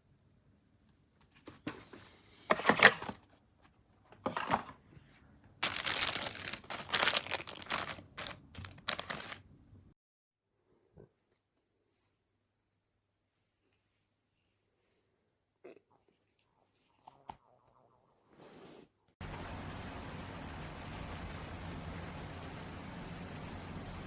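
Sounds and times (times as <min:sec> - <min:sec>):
crinkling and rustling: 0:01.2 - 0:09.4.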